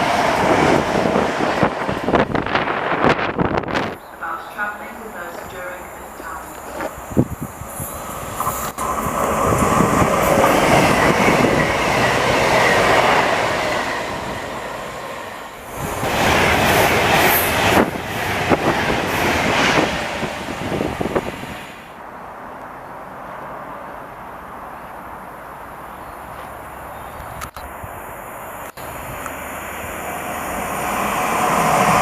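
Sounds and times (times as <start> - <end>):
train wheels on rails: 0.0 - 21.9, 28.6 - 32.0.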